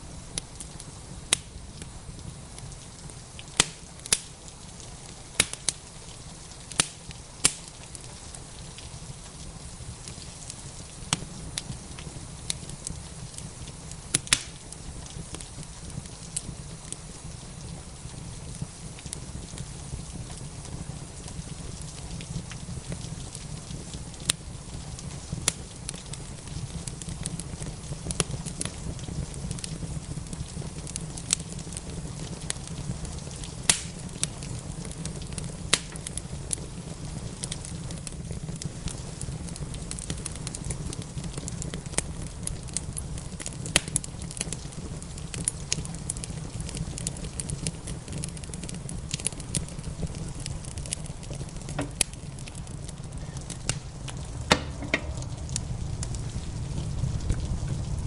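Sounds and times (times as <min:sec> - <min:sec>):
rain pattering: 0:00.0 - 0:58.0
wood fire crackling and popping: 0:00.0 - 0:58.0
low rumble: 0:52.9 - 0:58.0.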